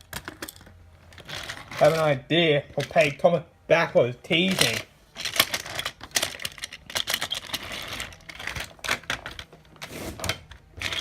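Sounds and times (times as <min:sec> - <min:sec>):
toy pieces clattering: 0:04.5 - 0:09.5, 0:10.8 - 0:11.0.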